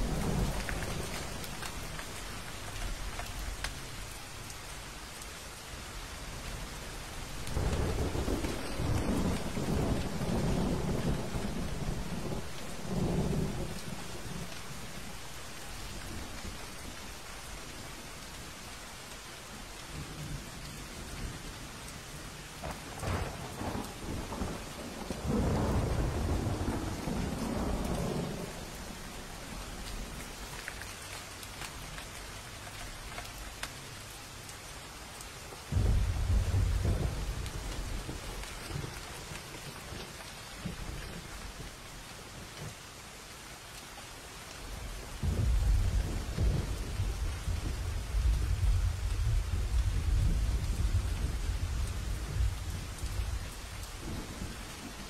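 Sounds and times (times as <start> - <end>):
heavy rain: 0.0 - 55.0
rolling thunder: 7.4 - 15.1, 22.6 - 29.0, 35.7 - 39.0, 45.2 - 54.6
loud thunderclap: 35.7 - 38.8, 45.2 - 53.4.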